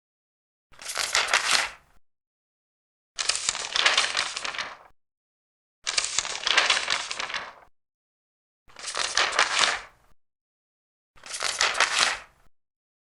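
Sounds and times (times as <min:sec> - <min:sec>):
paper pages turning: 0:00.8 - 0:01.8, 0:03.2 - 0:04.9, 0:05.9 - 0:07.7, 0:08.7 - 0:10.0, 0:11.2 - 0:12.4.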